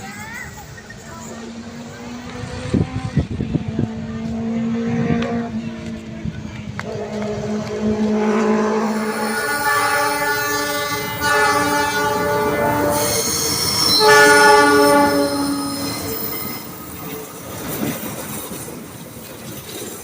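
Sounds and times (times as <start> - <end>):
train wheels on rails: 0.0 - 20.0
train horn blasts: 6.8 - 16.7.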